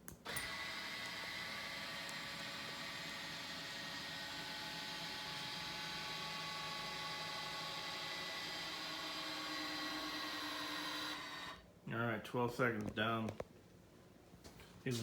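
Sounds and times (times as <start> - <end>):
electric actuator motor whine: 0.2 - 11.6.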